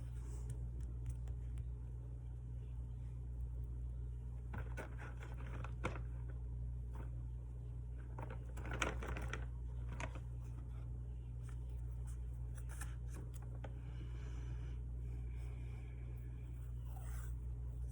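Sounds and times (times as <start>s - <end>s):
steady low hum: 0.0s - 17.9s
paper rustling and tapping: 4.5s - 6.3s, 8.0s - 10.6s.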